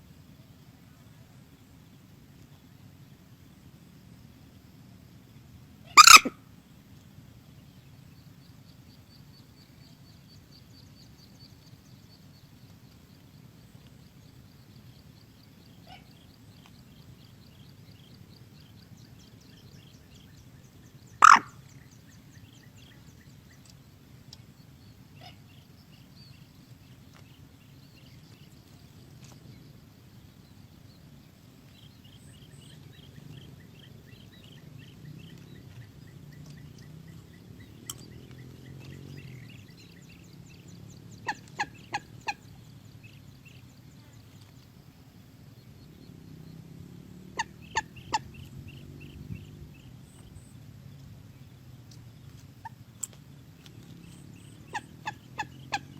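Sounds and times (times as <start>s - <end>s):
moorhen calls: 5.8s - 6.4s, 21.0s - 23.7s, 32.0s - 43.6s, 47.2s - 50.4s, 53.6s - 55.9s.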